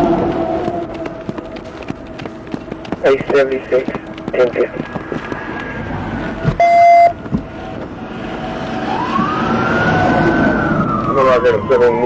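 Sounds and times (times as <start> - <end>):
emergency vehicle siren wailing: 0.0 - 2.2, 3.0 - 12.0
loud beep: 6.6 - 7.2.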